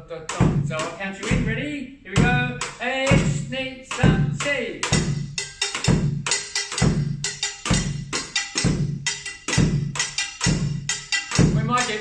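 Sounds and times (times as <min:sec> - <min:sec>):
scrape-and-hit rhythm: 0:00.0 - 0:12.0
quick high-pitched percussion taps: 0:02.2 - 0:12.0.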